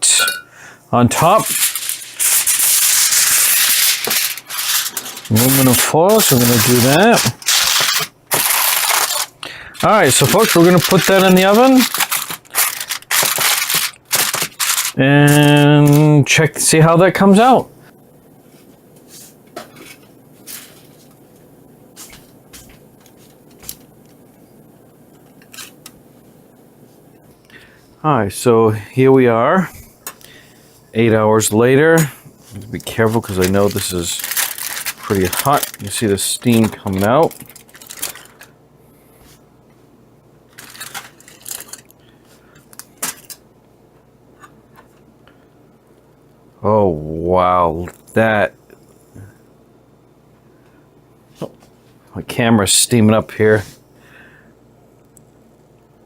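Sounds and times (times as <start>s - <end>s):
faint steady background noise: 0.0s - 56.0s
aluminum foil crinkling: 1.2s - 16.0s, 32.5s - 38.5s, 40.5s - 43.4s.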